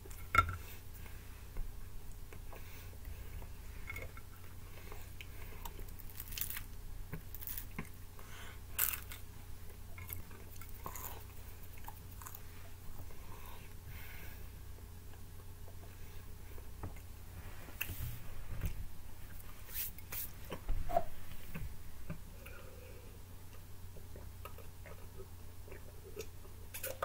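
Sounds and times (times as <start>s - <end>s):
person chewing: 8.7s - 13.6s.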